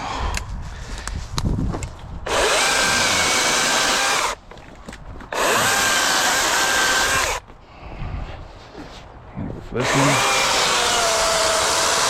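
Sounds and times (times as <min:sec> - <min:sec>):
battery chainsaw whining: 0:02.3 - 0:04.4, 0:05.3 - 0:07.4, 0:09.8 - 0:12.0.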